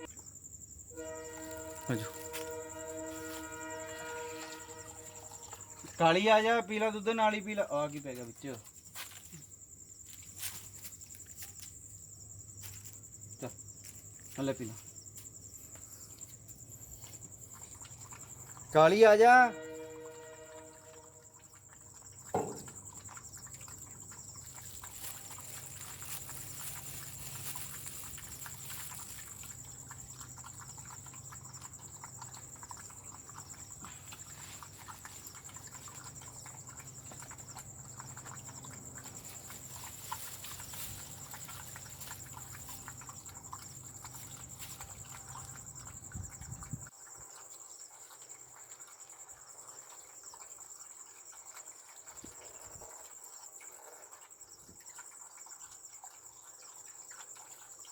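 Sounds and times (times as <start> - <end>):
crickets trilling: 0.0 - 57.9
knock: 22.3 - 22.8.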